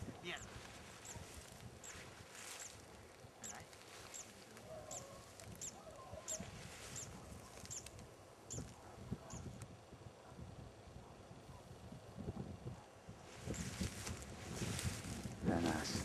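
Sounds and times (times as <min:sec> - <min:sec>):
soft rustling: 0:00.4 - 0:05.6, 0:13.2 - 0:16.0
small bird high chirp: 0:03.4 - 0:07.9.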